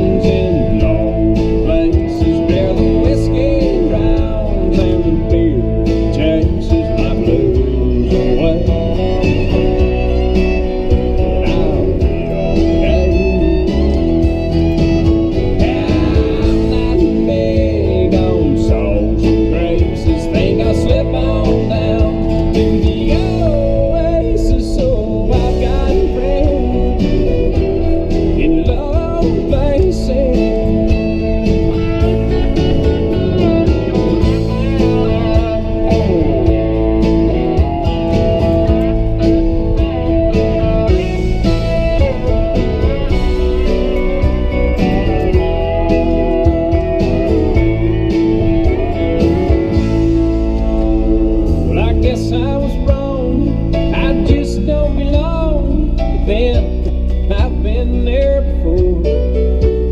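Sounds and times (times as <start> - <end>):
country guitar instrumental: 0.0 - 59.9.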